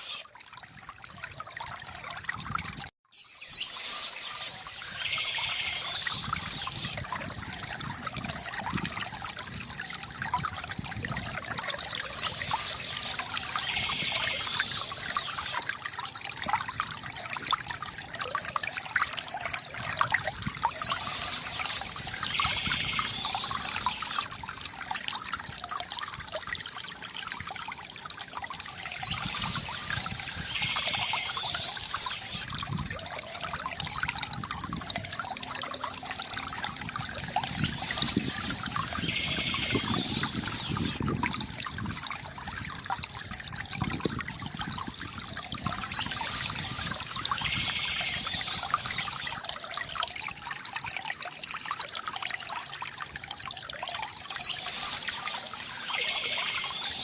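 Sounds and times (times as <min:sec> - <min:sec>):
stream water trickling: 0:00.0 - 0:57.0
birdsong: 0:03.2 - 0:07.0, 0:11.9 - 0:15.6, 0:20.7 - 0:24.3, 0:28.8 - 0:32.5, 0:37.3 - 0:41.0, 0:45.7 - 0:49.4, 0:54.3 - 0:57.0.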